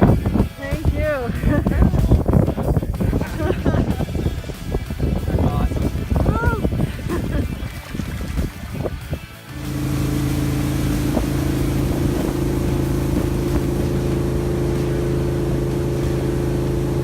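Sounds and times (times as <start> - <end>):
boat engine running: 0.0 - 17.0
rushing noise: 8.2 - 17.0.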